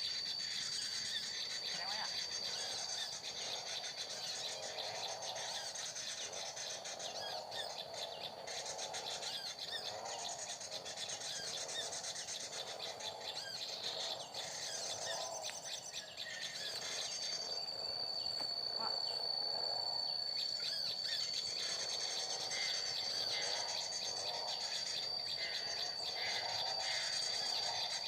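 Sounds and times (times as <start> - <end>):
small birds chirping: 0.0 - 28.0
high-pitched drone: 14.4 - 28.0.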